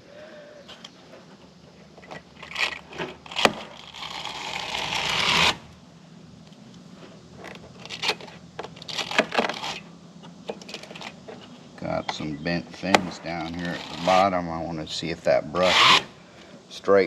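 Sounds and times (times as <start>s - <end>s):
hissing tool scrape: 2.4s - 5.8s, 13.1s - 14.5s, 15.5s - 16.5s.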